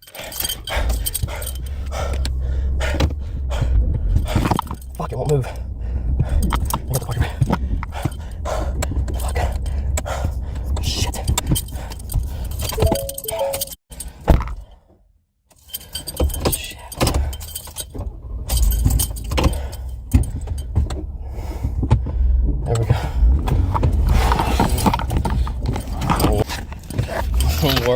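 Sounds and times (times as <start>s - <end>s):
metal jangling and rattling: 0.0s - 3.0s, 4.2s - 5.0s, 11.2s - 12.8s, 15.5s - 20.9s, 24.5s - 27.9s
low rumble: 0.7s - 12.7s.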